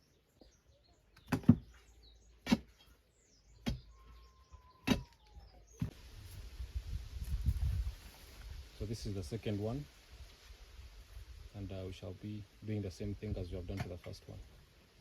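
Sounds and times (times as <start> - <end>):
birds chirping faintly: 0.0 - 6.6
dull thuds of soil tamping: 1.2 - 2.9, 3.6 - 4.0, 13.3 - 14.2.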